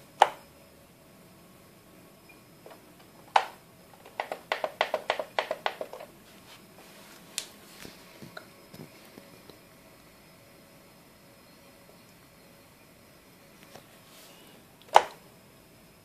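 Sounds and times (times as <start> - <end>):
rapid taps: 4.2 - 6.0.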